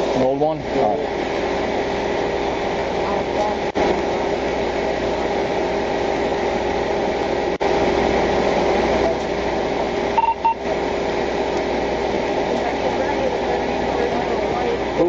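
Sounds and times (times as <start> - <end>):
vehicle hum and hiss: 0.0 - 15.0
short electronic beeps: 10.2 - 10.6.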